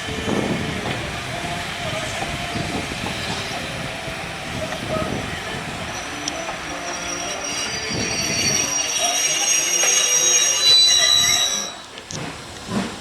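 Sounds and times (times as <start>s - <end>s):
train running on railway track: 0.0s - 13.0s
high-pitched wheel flange squeal: 4.9s - 11.9s.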